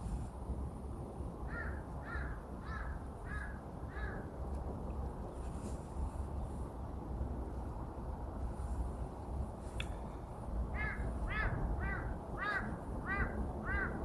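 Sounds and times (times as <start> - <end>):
low background rumble: 0.0 - 14.0
crow cawing: 1.5 - 4.2, 10.8 - 14.0.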